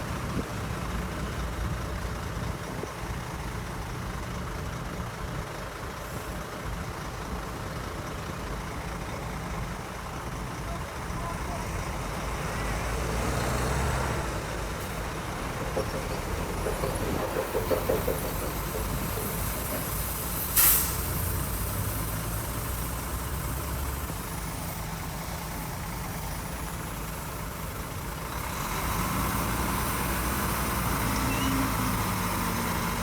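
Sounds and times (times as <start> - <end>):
diesel earthmoving machinery running: 0.0 - 33.0
loud air hiss: 19.8 - 21.6.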